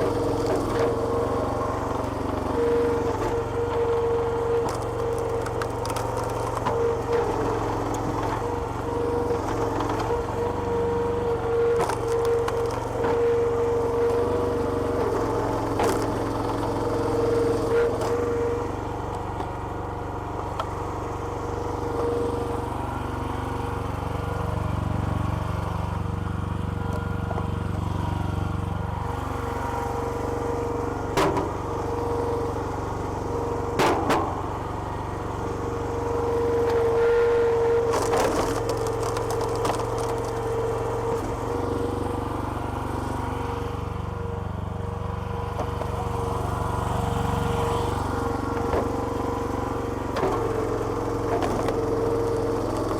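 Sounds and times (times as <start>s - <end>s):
small petrol engine running: 0.0s - 52.9s
wood crackling as it splits: 0.1s - 19.6s, 31.0s - 42.2s
wood splitting cracks: 4.6s - 10.4s, 33.7s - 34.7s, 37.9s - 40.4s, 48.0s - 52.9s.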